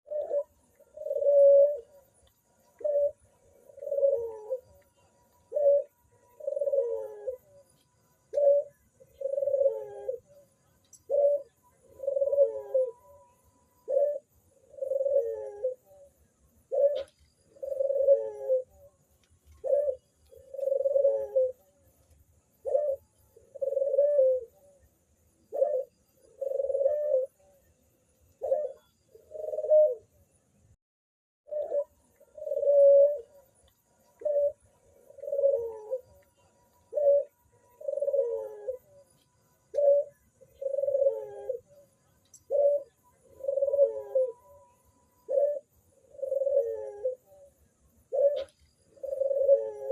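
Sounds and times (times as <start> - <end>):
dove cooing: 0.0 - 22.0, 22.6 - 24.9, 25.5 - 27.7, 28.3 - 30.2, 31.5 - 49.9.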